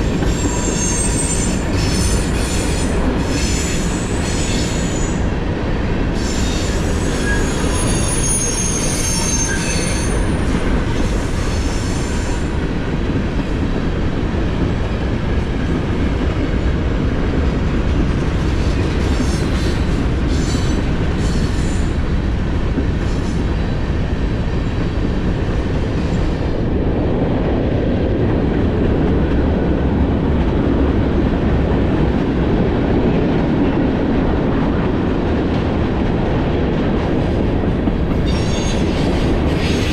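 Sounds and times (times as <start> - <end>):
train wheels rumbling on rail: 0.0 - 39.9
high-pitched wheel squeal: 0.3 - 5.1, 6.2 - 10.4.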